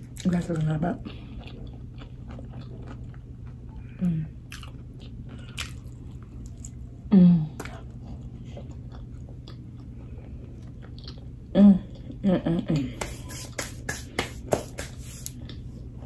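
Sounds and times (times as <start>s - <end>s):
wet chewing with crisp crackles: 0.0s - 6.9s, 7.6s - 12.2s, 15.2s - 16.0s
steady low hum: 0.0s - 16.0s.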